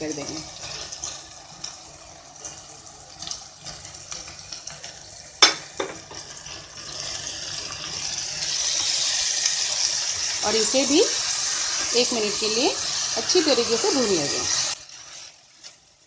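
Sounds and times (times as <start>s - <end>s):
tomatoes sizzling in oil: 0.0s - 16.0s
utensil knocks on pot: 5.4s - 6.0s
spatula stirring: 11.2s - 16.0s.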